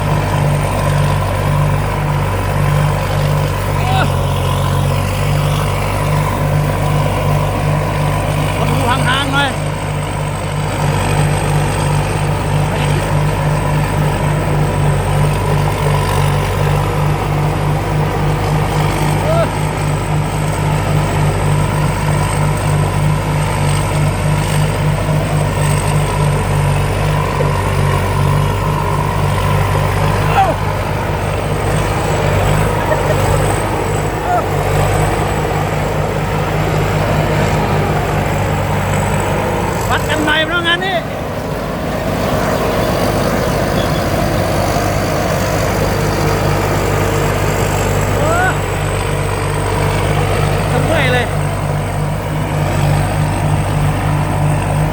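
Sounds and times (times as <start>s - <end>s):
combine harvester engine droning: 0.0s - 54.9s
faint high whine: 42.2s - 45.1s.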